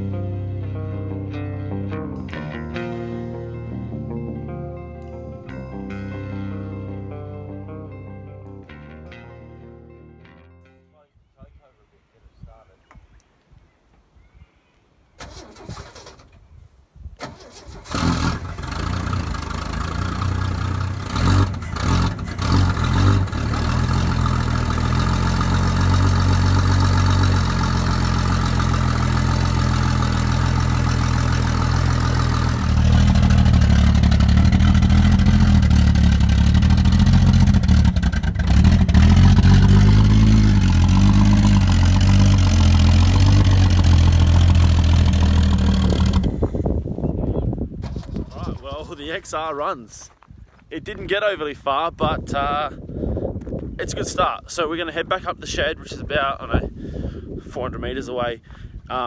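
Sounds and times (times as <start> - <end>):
car engine cranking and running: 15.2 - 16.4, 17.2 - 46.6, 47.8 - 49.0.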